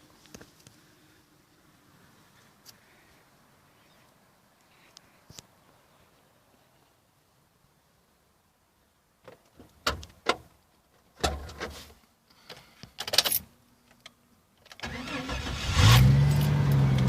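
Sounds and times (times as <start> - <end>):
car engine starting: 14.8 - 17.0.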